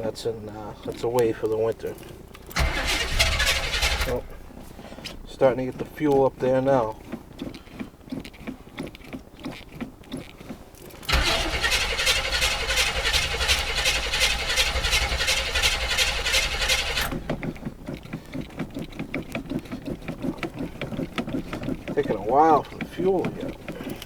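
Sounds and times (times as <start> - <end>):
starter motor cranking engine: 1.7 - 7.0, 10.5 - 24.0.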